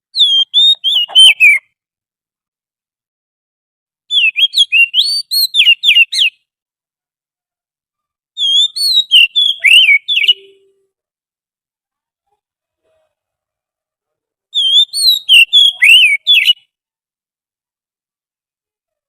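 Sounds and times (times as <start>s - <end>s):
bird whistling song: 0.1s - 1.7s, 4.1s - 6.5s, 8.4s - 10.8s, 14.6s - 16.7s.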